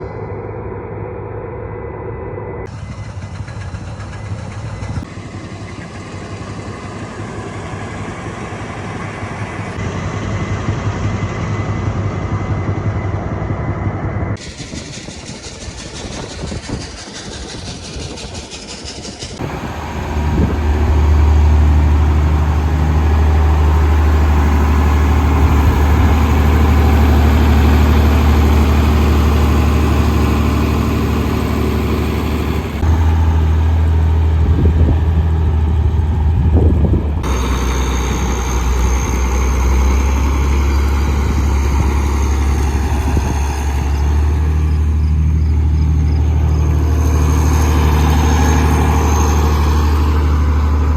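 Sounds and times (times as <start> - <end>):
farm machinery engine humming: 17.4 - 50.9.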